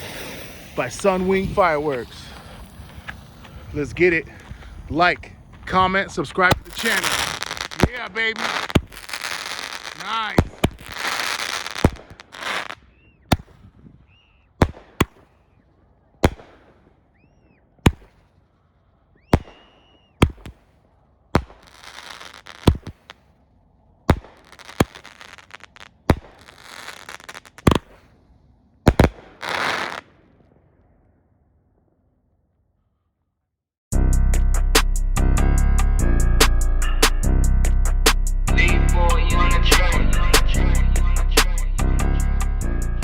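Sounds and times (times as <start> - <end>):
firework whistle: 0.0 - 4.0, 6.5 - 15.6, 19.1 - 20.7
firework crackling: 0.0 - 23.4, 24.0 - 30.4
firework bangs: 0.0 - 32.0.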